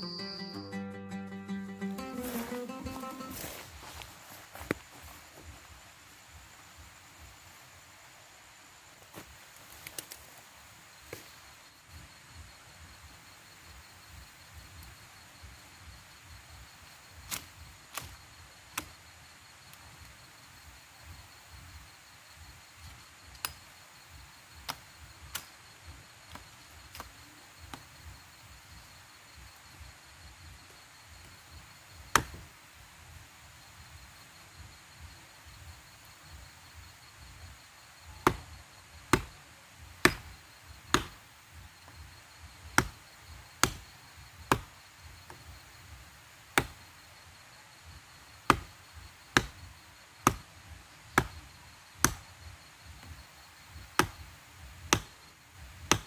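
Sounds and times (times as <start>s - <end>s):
wood being chopped: 32.1s - 32.4s, 38.2s - 39.4s, 40.0s - 41.2s, 42.6s - 43.0s, 43.6s - 45.4s, 46.5s - 46.8s, 48.4s - 50.5s, 51.1s - 53.2s, 53.8s - 55.2s, 55.8s - 56.0s.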